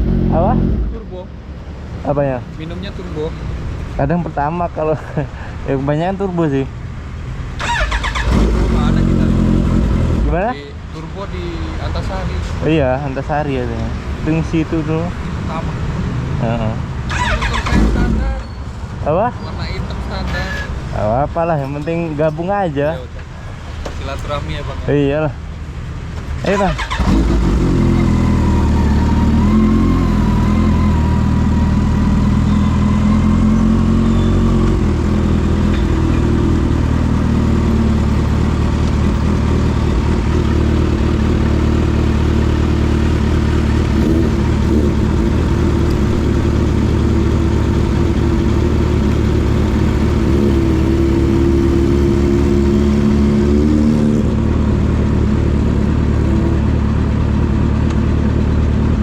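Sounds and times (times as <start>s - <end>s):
motorcycle engine running: 27.0s - 59.0s.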